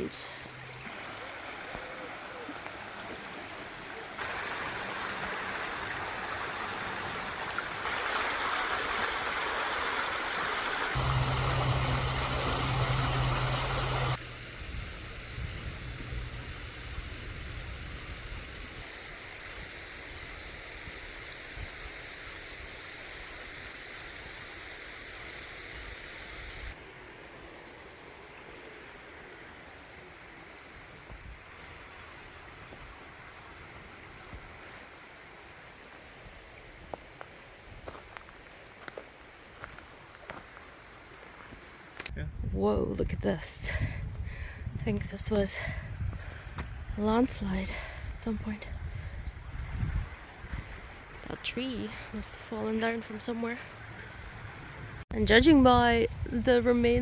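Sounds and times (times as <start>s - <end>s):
water rushing over stones: 0.0s - 14.2s
low rumble: 11.0s - 18.3s.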